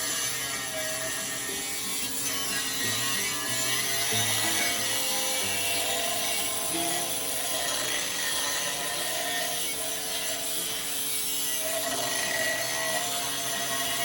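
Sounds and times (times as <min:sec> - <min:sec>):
angle grinder on steel: 0:00.0 - 0:14.0.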